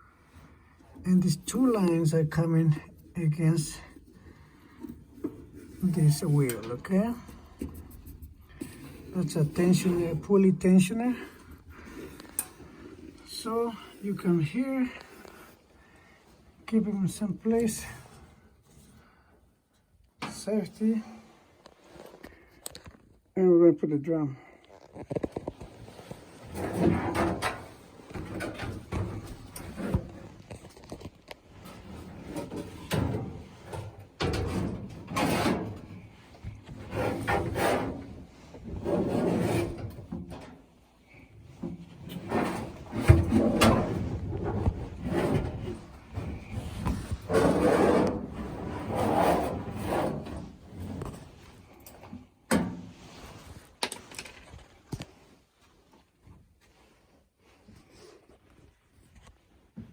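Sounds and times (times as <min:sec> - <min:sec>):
clunks and bumps: 0:24.7 - 0:55.3
metal drum scraping and rubbing: 0:26.4 - 0:30.4, 0:31.6 - 0:40.5, 0:41.6 - 0:51.4.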